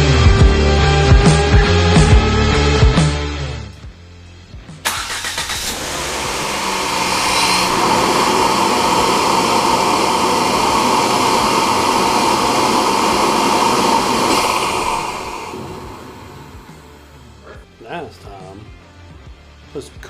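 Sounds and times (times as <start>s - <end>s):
motor-driven machine rushing: 5.0s - 17.1s.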